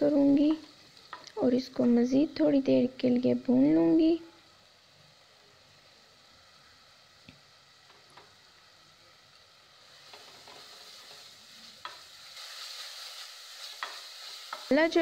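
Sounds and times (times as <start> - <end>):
masala sizzling in a pot: 0.0 - 15.0.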